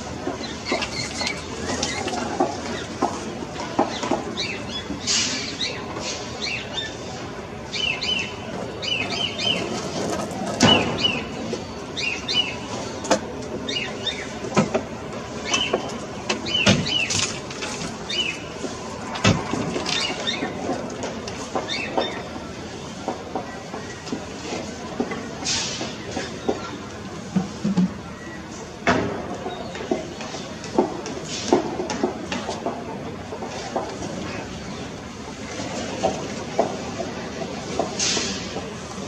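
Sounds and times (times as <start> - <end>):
scattered clicks and knocks: 0.2 - 4.4, 28.8 - 34.2.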